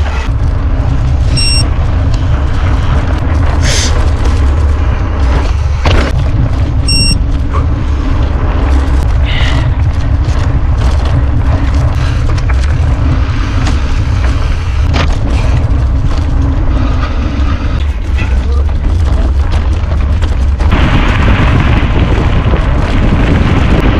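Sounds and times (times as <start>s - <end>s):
bike rattling and knocking: 0.0s - 23.9s
wind buffeting microphone: 0.0s - 23.9s
short electronic beep: 1.3s - 1.6s, 6.9s - 7.2s.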